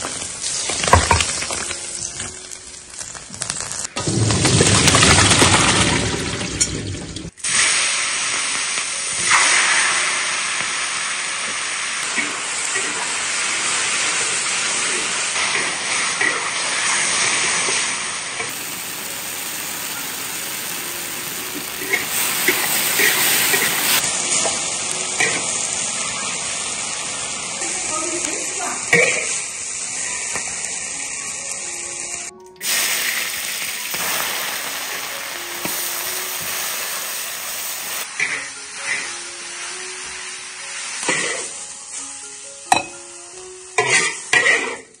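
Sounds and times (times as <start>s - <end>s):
mushrooms sizzling in hot oil: 0.0s - 3.9s, 7.3s - 44.9s.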